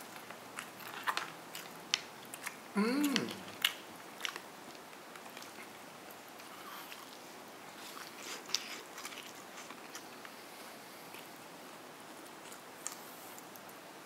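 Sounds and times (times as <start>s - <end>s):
chewing crispy fried chicken: 0.0s - 10.4s.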